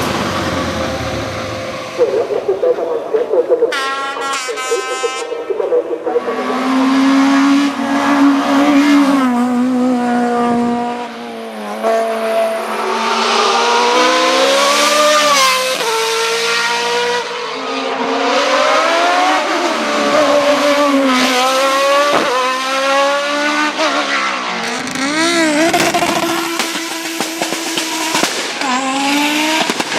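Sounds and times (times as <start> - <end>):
race car engine accelerating: 6.1 - 29.9
sharp crack: 25.7 - 29.9.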